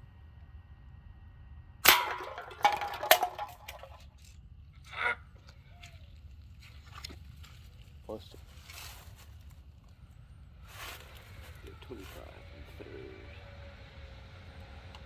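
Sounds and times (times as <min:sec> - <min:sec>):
bb gun shot crack: 0:01.8 - 0:04.0
soda cans clanging and rattling: 0:01.9 - 0:04.3.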